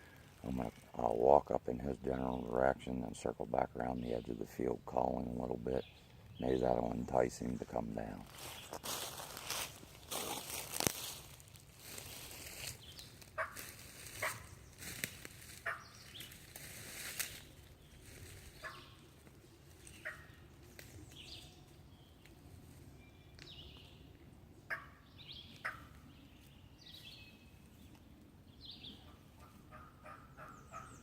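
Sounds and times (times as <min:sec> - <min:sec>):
footsteps through leaves: 0:08.2 - 0:18.6
turkey call yelps: 0:24.7 - 0:25.0, 0:29.4 - 0:31.0.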